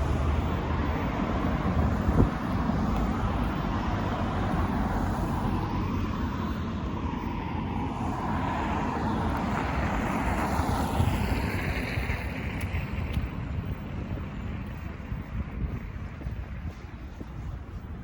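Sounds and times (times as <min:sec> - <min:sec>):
vehicles passing by: 0:00.0 - 0:18.0.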